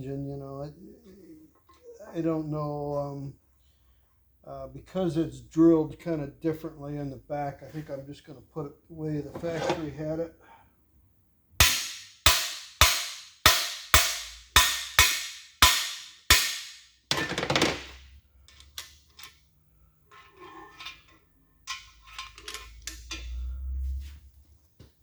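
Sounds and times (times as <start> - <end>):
metal scraping: 9.1 - 10.0, 20.0 - 24.4
light metal clatter: 20.1 - 24.0.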